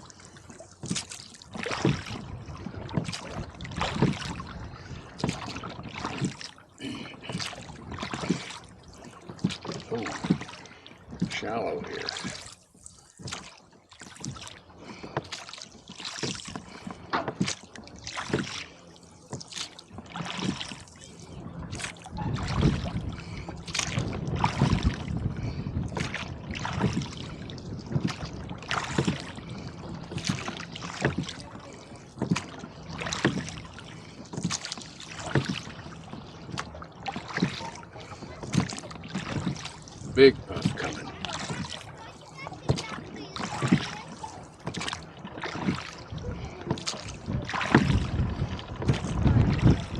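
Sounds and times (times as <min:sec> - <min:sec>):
oars splashing in water: 0:00.0 - 0:49.9
water slapping: 0:00.0 - 0:49.9
gusty wind rumble: 0:21.4 - 0:28.7, 0:47.1 - 0:49.9.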